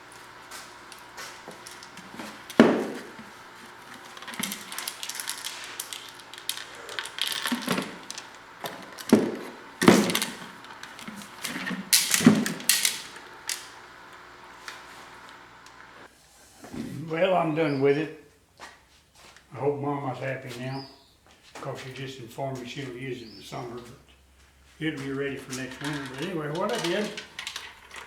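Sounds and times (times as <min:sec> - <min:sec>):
handling clatter: 0:00.0 - 0:16.0, 0:25.4 - 0:28.0.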